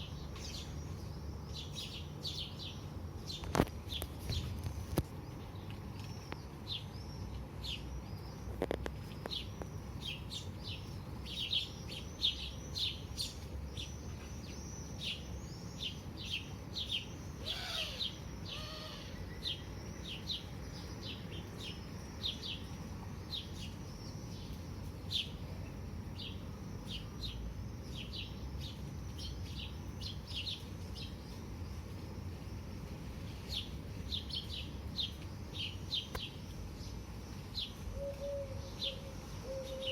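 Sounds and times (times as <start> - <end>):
small birds chirping: 0.0 - 39.9
loud bird call: 17.4 - 19.6.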